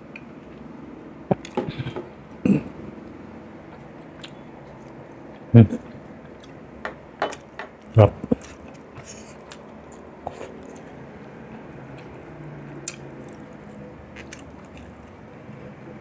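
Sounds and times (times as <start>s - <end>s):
loud mouth sound: 1.3s - 2.9s
wet chewing and lip smacks: 12.8s - 15.2s.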